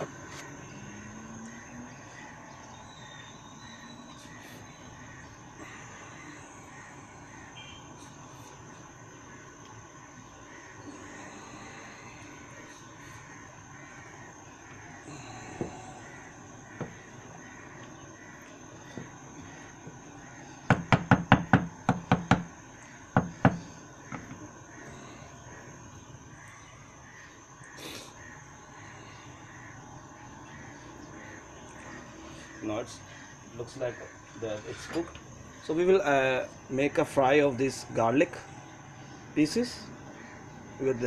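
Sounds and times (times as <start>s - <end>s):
faint steady background noise: 0.0s - 41.0s
sharp knocks: 20.7s - 22.5s, 23.1s - 24.4s.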